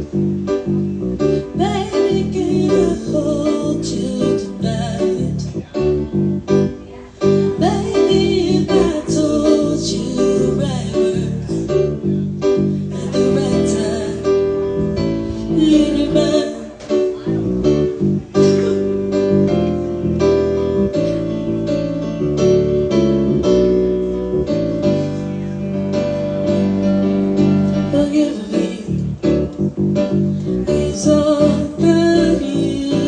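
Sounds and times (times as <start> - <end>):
keyboard: 0.0 - 33.0
woman singing ballad: 1.5 - 5.6, 7.5 - 11.6, 12.9 - 14.7, 15.4 - 17.1, 27.9 - 29.1, 30.7 - 33.0.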